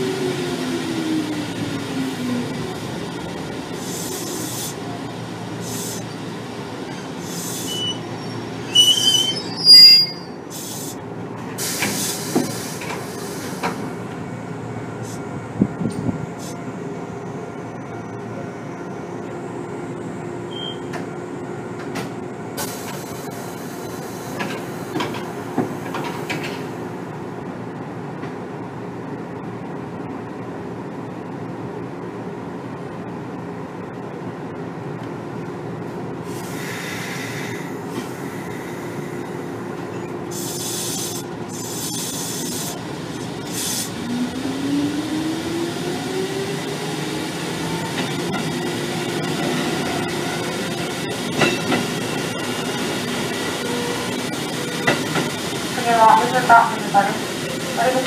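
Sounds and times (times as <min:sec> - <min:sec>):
train running hum: 0:00.0 - 0:58.0
wheel flanges squealing: 0:07.0 - 0:10.4
clacks over rail joints: 0:24.4 - 0:26.7, 0:51.3 - 0:51.9, 0:54.8 - 0:55.3.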